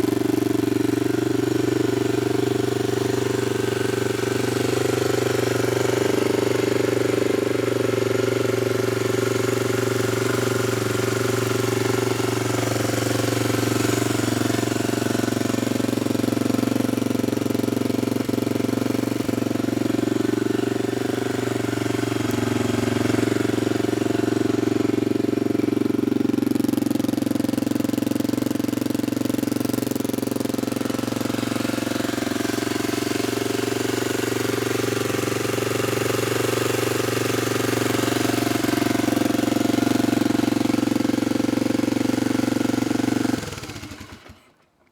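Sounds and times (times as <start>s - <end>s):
motorcycle engine idling: 0.0s - 44.8s.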